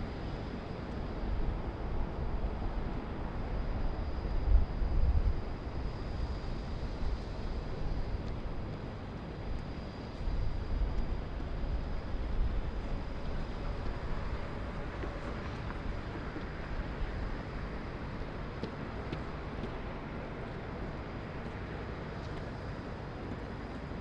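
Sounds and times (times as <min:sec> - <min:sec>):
distant traffic rumble: 0:10.8 - 0:24.0.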